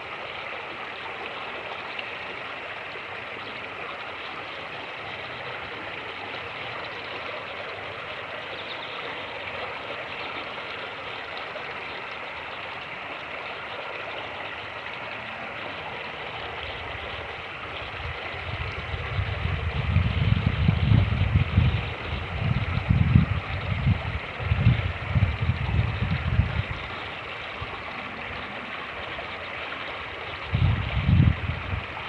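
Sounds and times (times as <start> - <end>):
creek rushing: 0.0 - 32.0
wind buffeting microphone: 16.8 - 28.4, 30.4 - 32.0.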